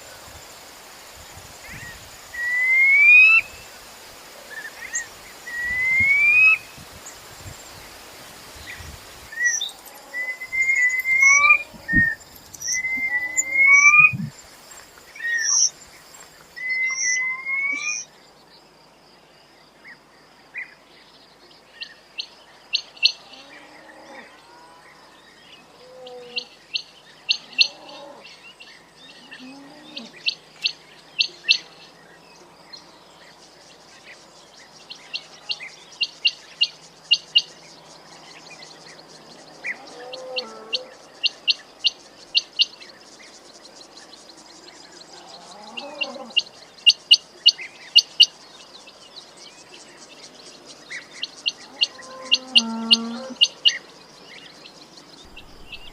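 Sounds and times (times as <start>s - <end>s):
low quail call notes: 10.1s - 14.3s
quail chirping: 10.2s - 14.3s, 55.3s - 55.9s.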